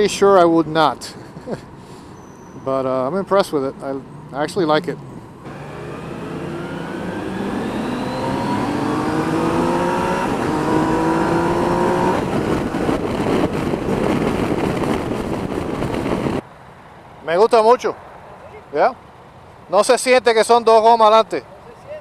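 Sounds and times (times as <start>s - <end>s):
wind and road noise: 0.0s - 22.0s
motorcycle engine accelerating: 2.2s - 16.4s.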